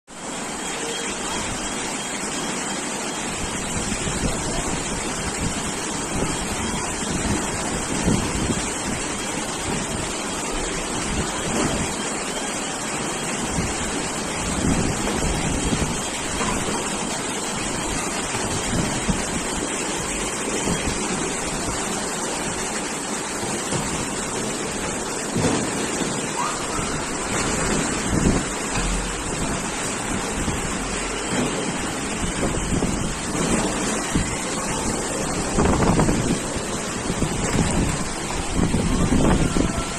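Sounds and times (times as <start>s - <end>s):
floodwater rushing: 0.1s - 39.9s
wind buffeting microphone: 3.3s - 12.0s, 13.4s - 22.6s, 26.4s - 39.9s
storm wind rushing: 31.8s - 39.9s.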